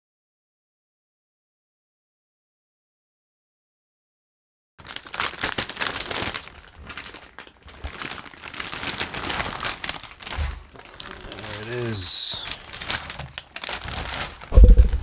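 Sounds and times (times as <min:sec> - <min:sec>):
plastic wrapping rustling: 0:04.8 - 0:15.0
dull thump: 0:14.5 - 0:15.0.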